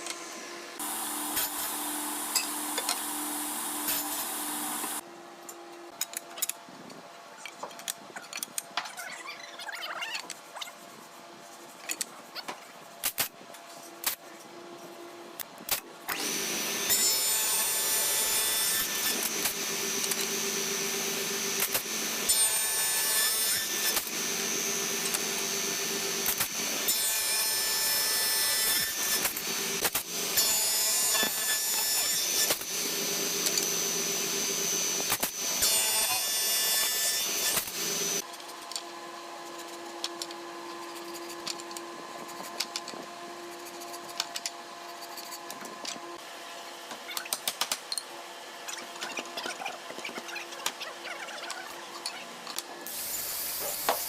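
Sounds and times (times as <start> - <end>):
power tool cutting wood: 0.8 - 5.0, 16.1 - 38.2, 52.8 - 54.0.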